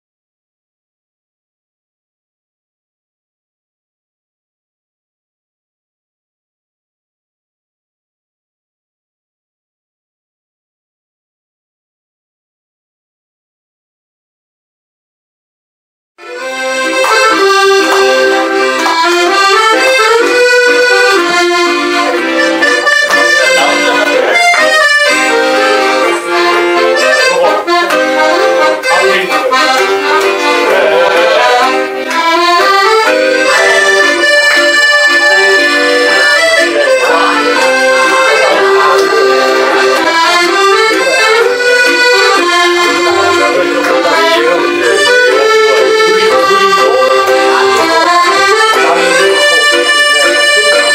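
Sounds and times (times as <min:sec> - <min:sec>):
accordion playing lively melody: 0:16.2 - 0:50.9.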